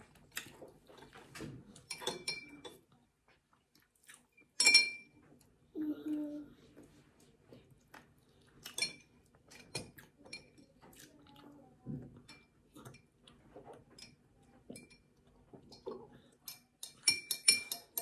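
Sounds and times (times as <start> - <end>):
person chewing: 0.1 - 1.2, 3.3 - 4.5, 7.5 - 9.4.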